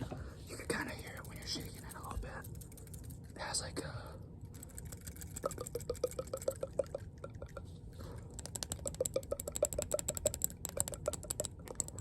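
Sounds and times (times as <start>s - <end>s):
rapid clicking on hard object: 4.5s - 12.0s.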